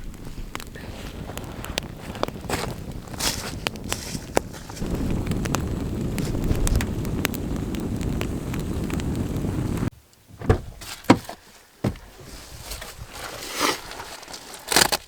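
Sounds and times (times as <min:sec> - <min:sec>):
burning wood popping: 0:00.0 - 0:09.9
campfire crackling: 0:00.0 - 0:09.9
wind on microphone: 0:00.0 - 0:09.9.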